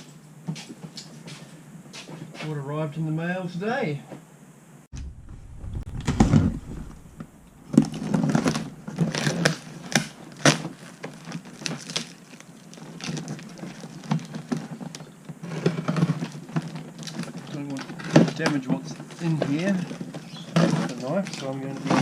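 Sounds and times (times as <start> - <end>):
parcel packaging crinkling: 7.7 - 22.0.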